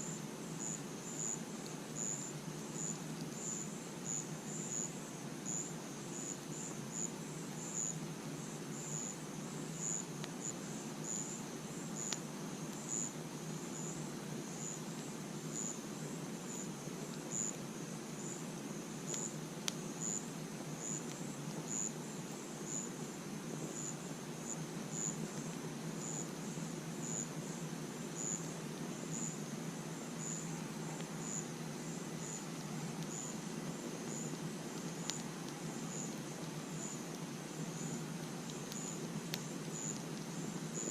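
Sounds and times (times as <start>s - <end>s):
crickets chirping: 0.0s - 40.9s
low steady hiss: 0.0s - 40.9s
campfire popping: 8.8s - 40.9s.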